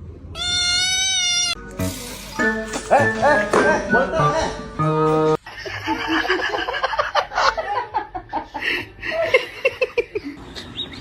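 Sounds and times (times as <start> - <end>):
people laughing: 2.8 - 4.8, 5.4 - 10.4.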